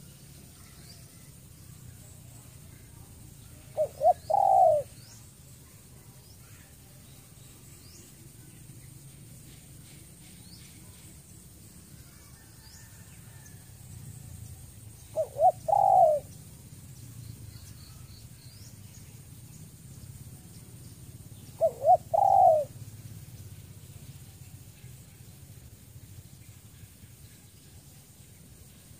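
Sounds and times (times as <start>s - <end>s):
small birds chirping: 0.0s - 28.9s
dove cooing: 3.6s - 5.1s, 15.0s - 16.7s, 21.2s - 23.0s.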